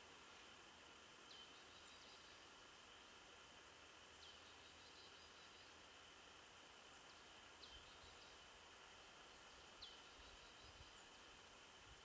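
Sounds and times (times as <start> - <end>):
faint forest hiss: 0.0 - 12.0.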